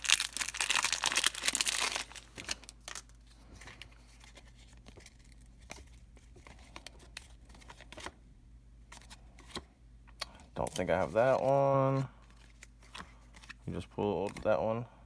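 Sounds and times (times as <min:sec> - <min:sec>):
wrapper crinkling: 0:00.0 - 0:03.2
cards being flipped through: 0:00.0 - 0:08.2, 0:08.9 - 0:14.5.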